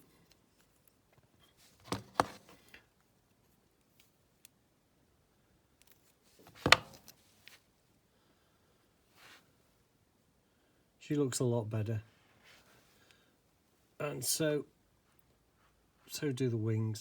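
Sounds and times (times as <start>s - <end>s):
clicks and knocks of metal model: 5.8s - 7.2s.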